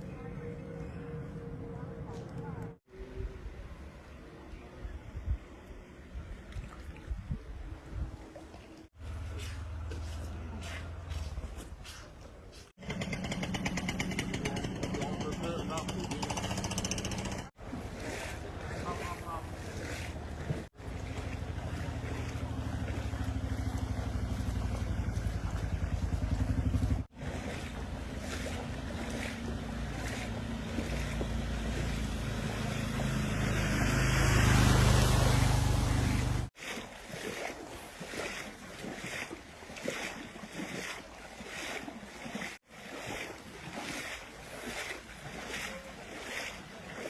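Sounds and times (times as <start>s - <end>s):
low motor hum: 0.0s - 11.8s, 12.8s - 36.5s
wind on microphone: 4.8s - 8.3s
floodwater rushing: 12.8s - 47.0s.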